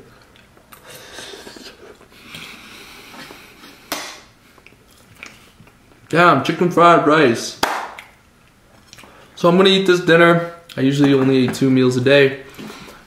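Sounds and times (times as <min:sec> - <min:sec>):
person chewing food: 0:00.0 - 0:03.8, 0:04.5 - 0:06.0, 0:08.0 - 0:09.2.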